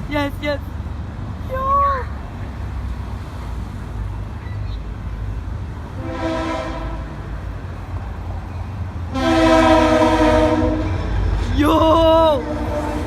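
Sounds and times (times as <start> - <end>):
train low rumble: 0.0 - 13.0
train air horn blasts: 6.0 - 7.2, 9.1 - 11.1, 12.4 - 13.0.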